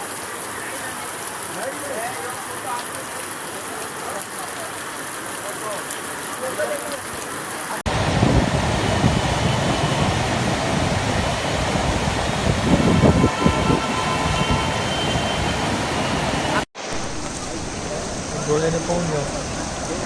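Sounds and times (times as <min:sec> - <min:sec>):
floodwater rushing: 0:00.0 - 0:07.9, 0:16.8 - 0:20.0
low rumbles: 0:16.8 - 0:20.0.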